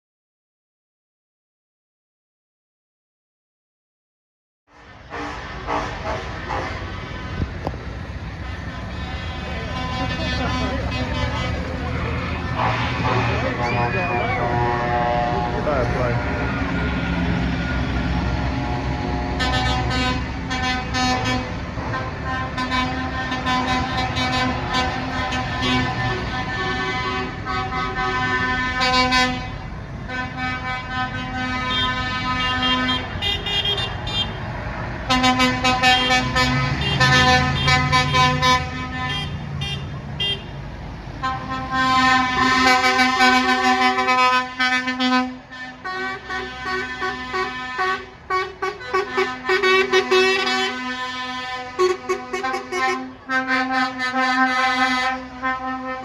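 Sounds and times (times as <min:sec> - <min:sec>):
lorry engine passing: 0:04.8 - 0:26.4
lorry horns blasting: 0:08.2 - 0:40.6, 0:41.2 - 0:56.0.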